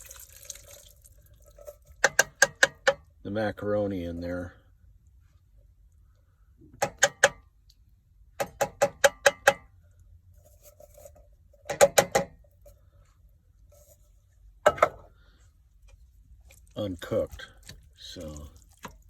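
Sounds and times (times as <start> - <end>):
metallic taps on cookware: 8.4 - 9.7.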